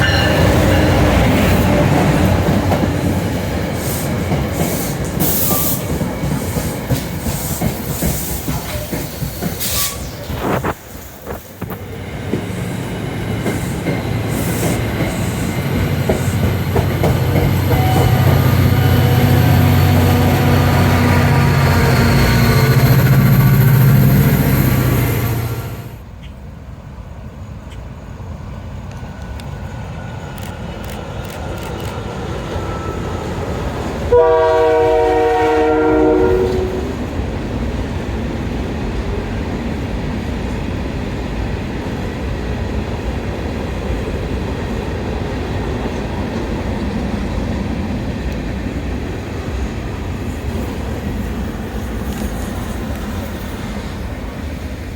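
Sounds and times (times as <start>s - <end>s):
train rumbling: 0.0s - 54.9s
locomotive horn chord: 17.7s - 22.2s, 34.1s - 37.0s.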